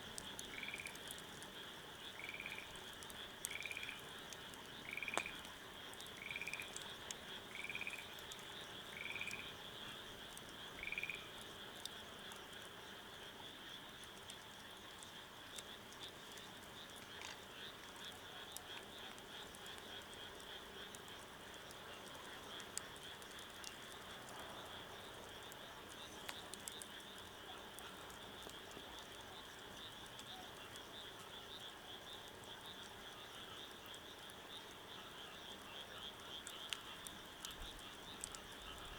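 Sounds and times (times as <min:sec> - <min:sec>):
faint ticks: 0:00.0 - 0:38.9
high trilling frog chorus: 0:00.5 - 0:01.0, 0:02.2 - 0:02.7, 0:03.5 - 0:04.0, 0:04.8 - 0:05.4, 0:06.2 - 0:06.8, 0:07.5 - 0:08.2, 0:08.8 - 0:11.3.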